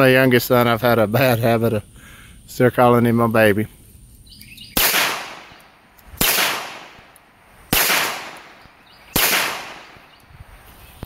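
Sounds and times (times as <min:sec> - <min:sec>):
gunshots with short echo: 0:04.8 - 0:05.6, 0:06.2 - 0:07.1, 0:07.7 - 0:10.1.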